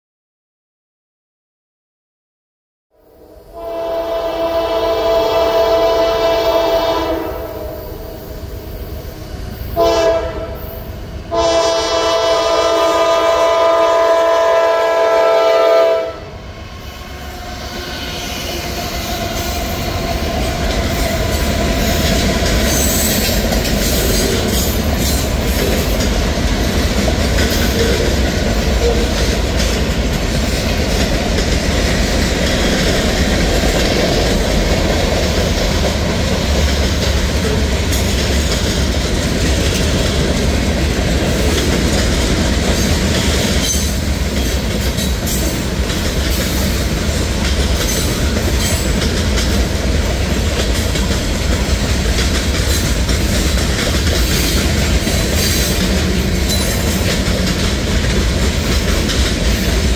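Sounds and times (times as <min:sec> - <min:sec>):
locomotive air horn blasts: 0:03.5 - 0:08.0, 0:09.8 - 0:18.6
diesel locomotives rumbling: 0:03.5 - 0:59.9.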